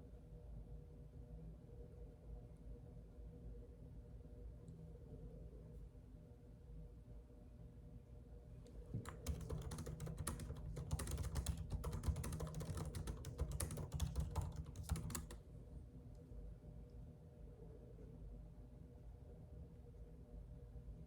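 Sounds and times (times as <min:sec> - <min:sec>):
typing on computer keyboard: 0:08.9 - 0:15.4.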